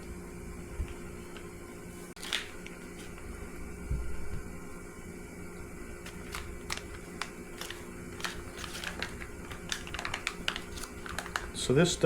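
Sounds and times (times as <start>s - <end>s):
steady low hum: 0.0s - 12.0s
packaging crinkling: 2.2s - 3.3s, 6.0s - 11.8s.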